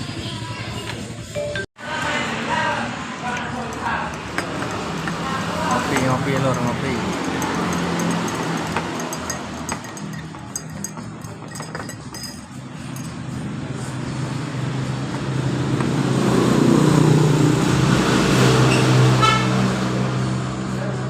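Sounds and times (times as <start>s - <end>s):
vehicle engine passing: 1.8s - 11.3s, 12.5s - 21.0s
brief horn toot: 19.1s - 19.6s.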